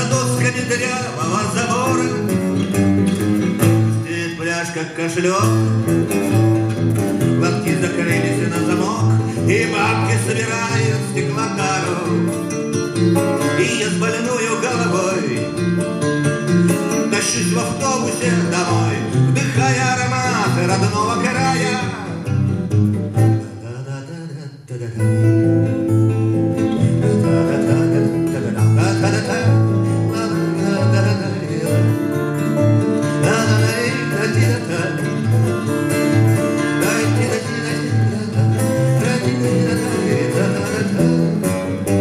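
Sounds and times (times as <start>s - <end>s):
acoustic guitar playing: 0.0s - 42.0s.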